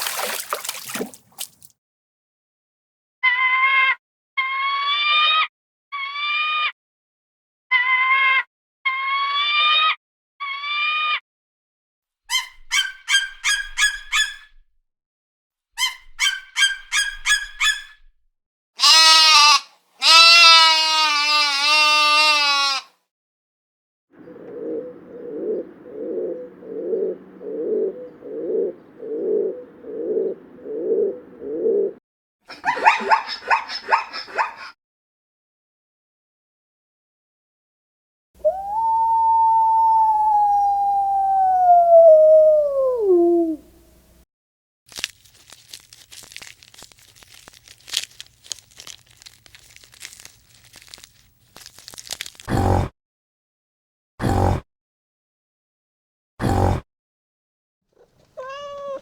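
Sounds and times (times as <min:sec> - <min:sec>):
animal calling: 0:24.2 - 0:34.7, 0:54.2 - 0:54.6, 0:56.4 - 0:56.8, 0:58.0 - 0:59.0
crinkling and crunching: 0:44.9 - 0:52.5.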